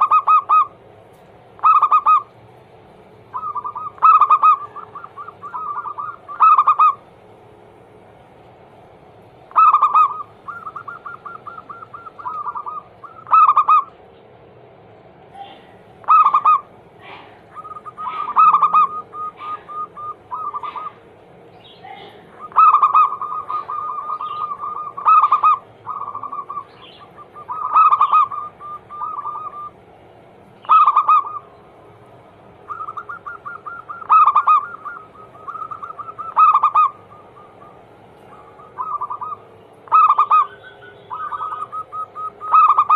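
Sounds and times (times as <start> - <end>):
doves cooing: 0.0 - 2.6, 3.2 - 14.1, 15.3 - 42.9.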